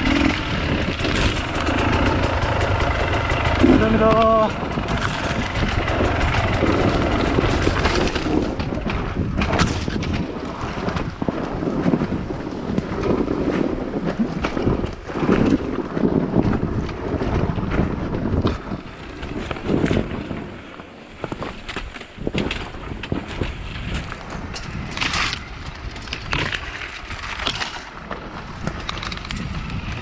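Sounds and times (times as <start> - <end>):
knocks and rattles: 0.0 - 12.2
wind buffeting microphone: 0.0 - 30.0.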